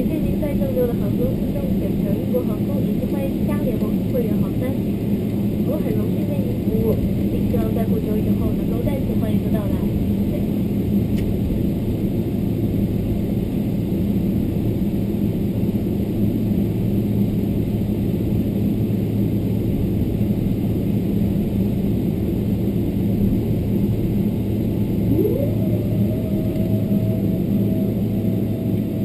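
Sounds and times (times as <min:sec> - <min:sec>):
airplane cabin rumble: 0:00.0 - 0:29.0.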